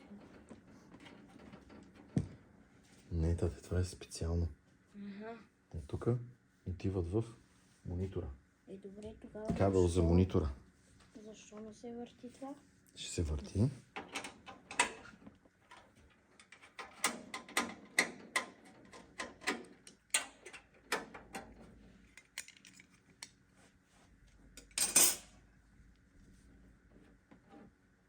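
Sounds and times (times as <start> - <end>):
computer parts clicking and clattering: 22.1 - 23.1.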